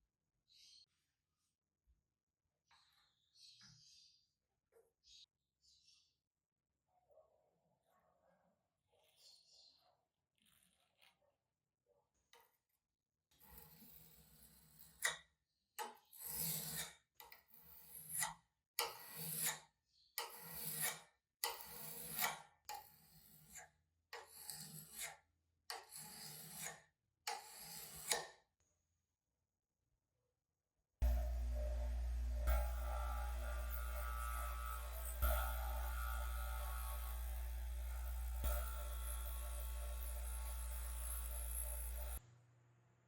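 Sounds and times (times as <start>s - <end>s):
hand tool rasping on wood: 31.0s - 42.2s.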